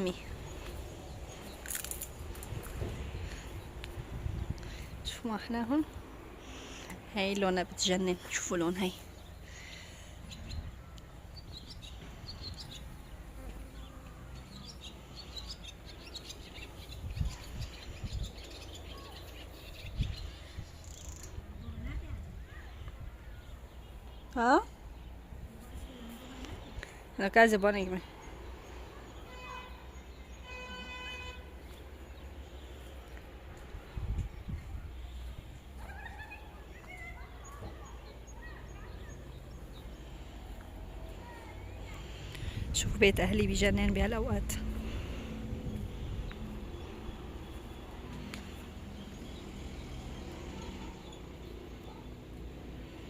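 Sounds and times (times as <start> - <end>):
small birds chirping: 0.0 - 53.0
vehicle horn toot: 30.4 - 31.5.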